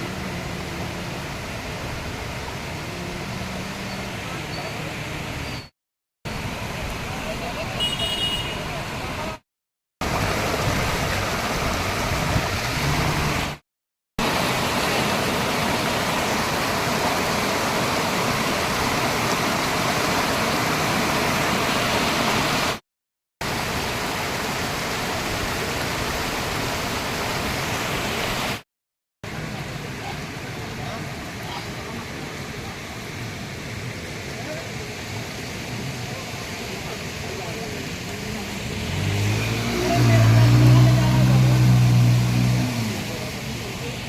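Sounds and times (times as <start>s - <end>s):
floodwater rushing roar: 0.0s - 5.6s, 6.3s - 9.4s, 10.0s - 13.6s, 14.2s - 22.8s, 23.4s - 28.6s, 29.2s - 44.0s.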